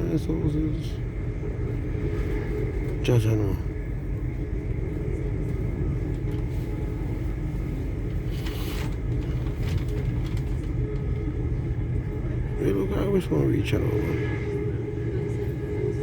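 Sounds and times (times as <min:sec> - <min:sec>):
train rumble inside carriage: 0:00.0 - 0:16.0.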